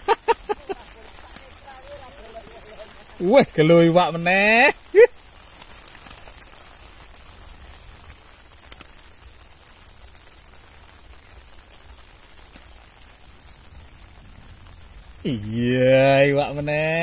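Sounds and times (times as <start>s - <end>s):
steady rain falling: 0.0s - 17.0s
drops ticking: 8.0s - 11.3s, 11.9s - 17.0s.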